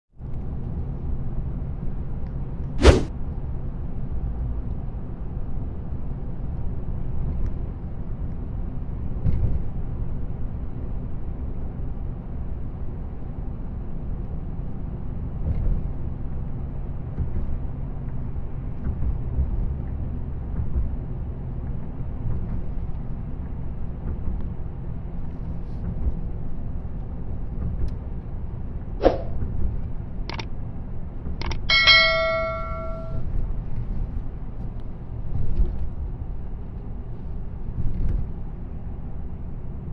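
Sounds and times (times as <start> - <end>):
car road and engine rumble: 0.2 - 39.9
sharp click: 31.4 - 33.2.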